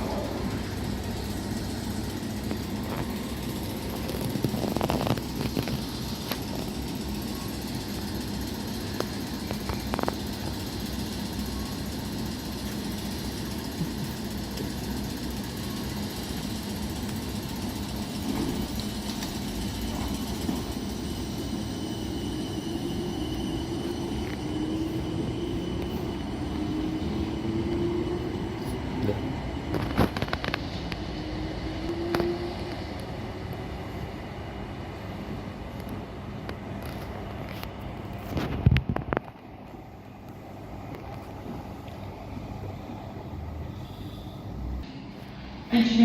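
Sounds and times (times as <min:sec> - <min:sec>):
train motor whine rising in pitch: 0:00.0 - 0:34.6
train running with rumble and hum: 0:00.0 - 0:46.0.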